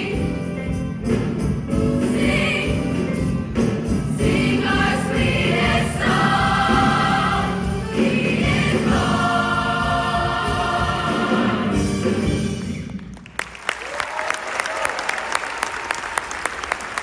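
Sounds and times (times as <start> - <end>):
choir singing in harmony: 0.0 - 12.8.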